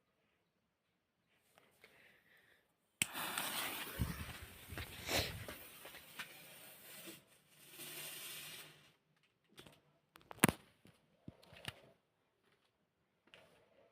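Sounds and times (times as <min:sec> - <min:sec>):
firecracker fizzing hiss: 0:03.0 - 0:06.9.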